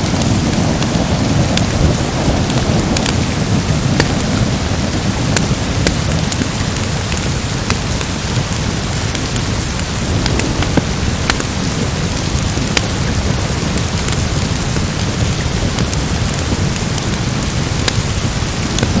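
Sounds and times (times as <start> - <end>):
fireplace crackling and popping: 0.0 - 19.0
heavy rain: 0.0 - 19.0
low rumble: 9.8 - 15.4.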